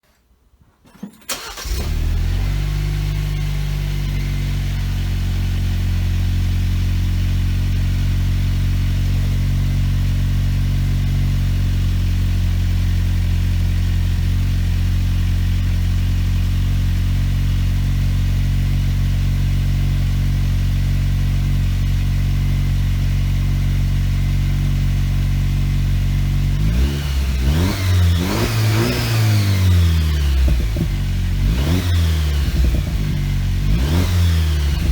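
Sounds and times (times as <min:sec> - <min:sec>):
car engine starting and idling: 0:01.1 - 0:34.9
car engine revving: 0:01.3 - 0:10.1, 0:21.9 - 0:34.9.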